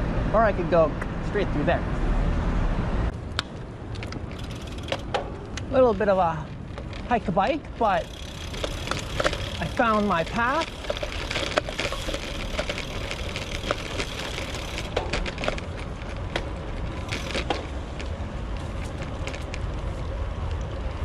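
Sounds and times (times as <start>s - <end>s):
bike clicks and rattles: 3.1s - 21.0s
tyres crunching over gravel: 3.9s - 20.1s.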